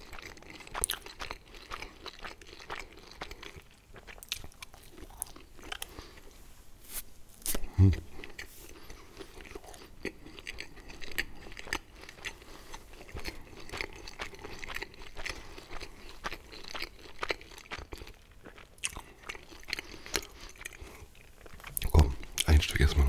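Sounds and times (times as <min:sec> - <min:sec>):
chewing with crunches: 0:00.0 - 0:06.4, 0:07.4 - 0:23.0.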